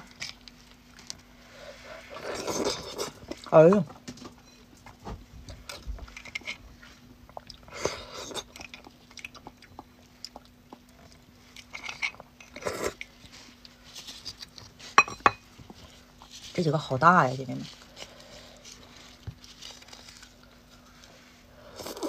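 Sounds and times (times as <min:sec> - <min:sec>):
wet chewing and lip smacks: 0:08.5 - 0:11.3.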